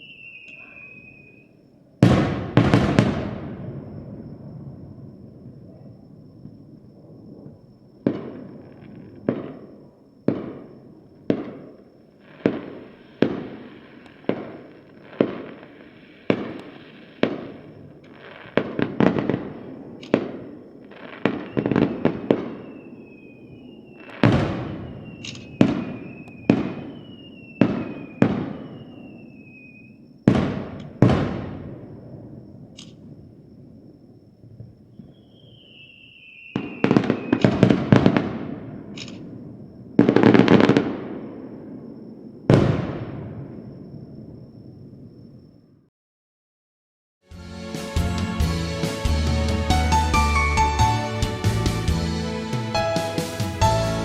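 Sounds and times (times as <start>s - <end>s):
whistling tone falling in pitch: 0.0s - 1.6s, 21.5s - 24.1s, 24.8s - 29.8s
fireworks bangs: 0.0s - 33.2s, 34.9s - 45.0s, 47.7s - 54.0s
fireworks crackling bursts: 2.0s - 4.3s, 10.3s - 31.8s, 35.1s - 41.7s, 47.3s - 54.0s.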